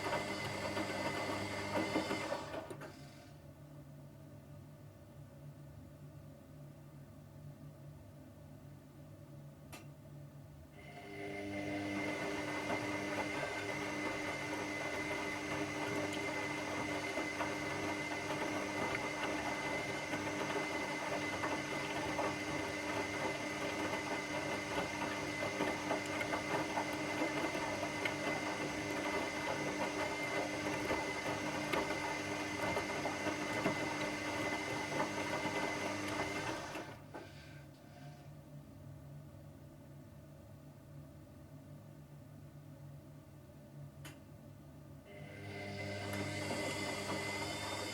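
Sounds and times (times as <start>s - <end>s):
washing machine running: 0.0s - 3.3s, 10.8s - 37.6s, 45.1s - 47.9s.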